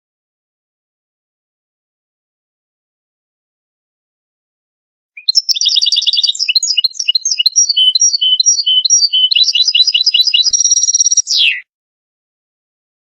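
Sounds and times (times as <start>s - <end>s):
finch twittering song: 5.2s - 11.6s.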